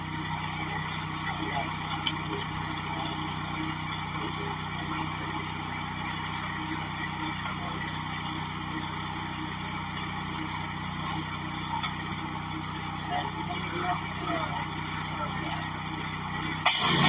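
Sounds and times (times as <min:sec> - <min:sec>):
pressure washer engine hum: 0:00.0 - 0:17.0
hiss of water spray: 0:16.7 - 0:17.0.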